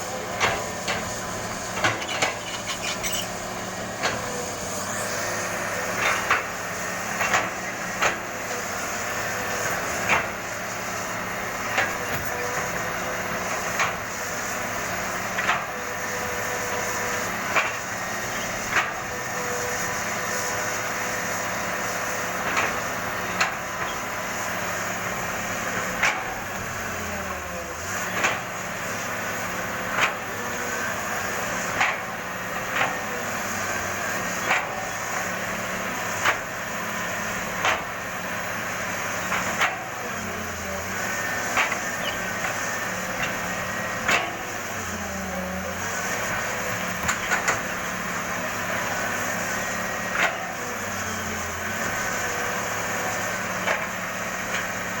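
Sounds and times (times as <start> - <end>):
excavator diesel engine running: 0.0 - 55.0
sharp metal clanks: 1.8 - 3.4.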